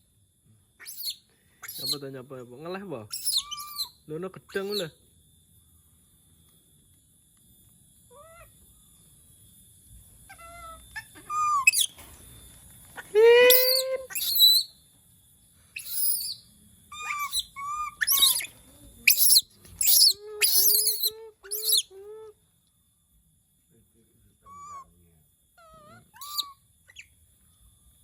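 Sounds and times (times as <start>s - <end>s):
monkey squealing calls: 0.8s - 2.0s, 3.1s - 4.8s, 10.4s - 12.0s, 13.4s - 14.7s, 15.8s - 21.9s, 25.7s - 27.1s.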